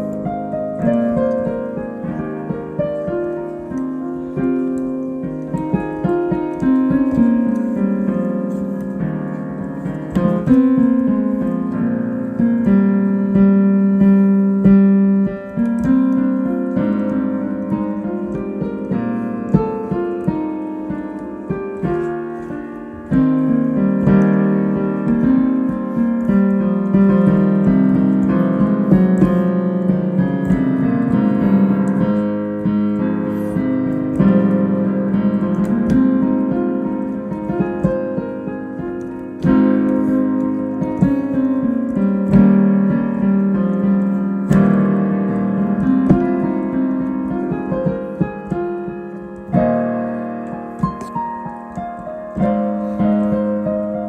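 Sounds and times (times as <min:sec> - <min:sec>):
solo piano piece: 0:00.0 - 0:54.0.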